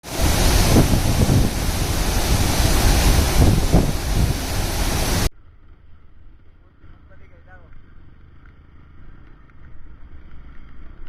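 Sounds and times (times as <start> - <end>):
loud rushing noise with rumble: 0.0 - 5.3.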